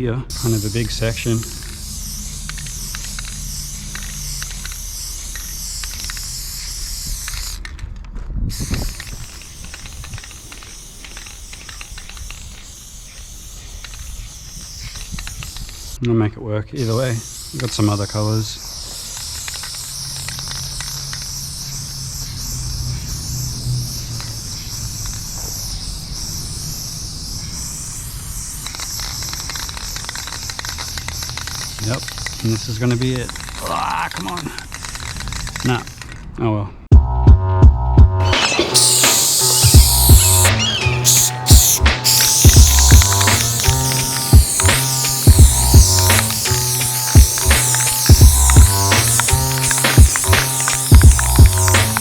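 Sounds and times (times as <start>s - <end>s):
insects chorus: 0.0s - 7.7s, 8.6s - 16.0s, 16.8s - 36.1s, 38.2s - 52.0s
spray paint can hissing: 0.0s - 16.1s, 16.8s - 36.3s, 38.2s - 52.0s
rapid clicks: 0.3s - 16.0s, 27.3s - 36.3s, 38.2s - 52.0s.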